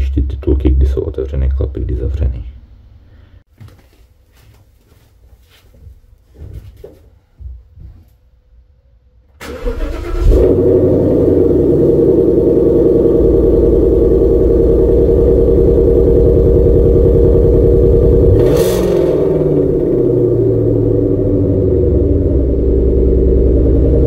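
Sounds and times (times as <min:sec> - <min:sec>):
car engine idling: 0:09.5 - 0:24.0.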